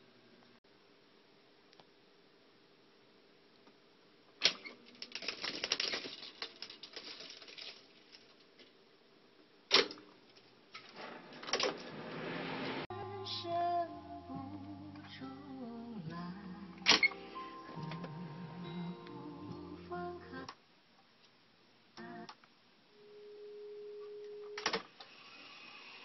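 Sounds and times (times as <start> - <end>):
music playing: 12.4 - 20.5.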